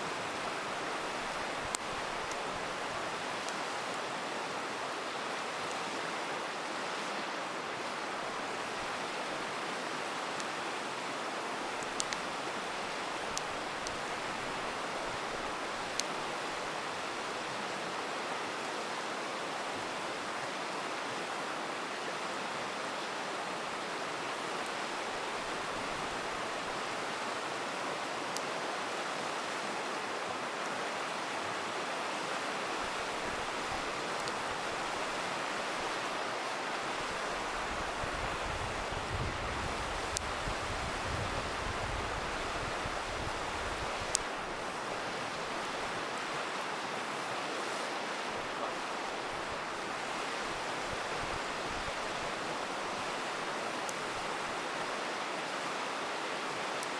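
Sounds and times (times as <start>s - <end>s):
campfire crackling: 0.0s - 19.0s, 22.2s - 56.9s
river water rushing: 0.0s - 56.9s.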